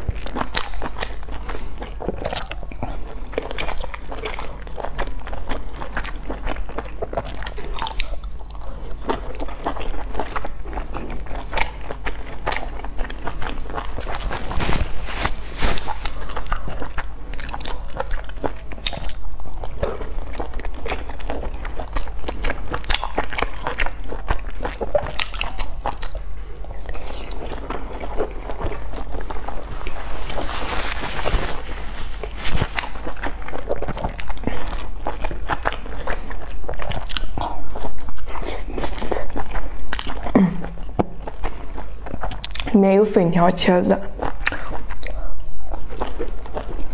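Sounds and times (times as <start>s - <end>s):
person biting and chewing: 0.0s - 42.7s.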